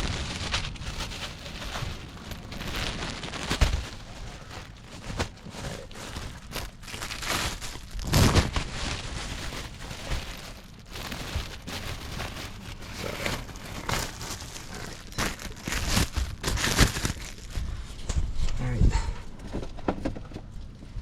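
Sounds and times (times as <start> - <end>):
plastic packaging crinkling: 0.0 - 17.8.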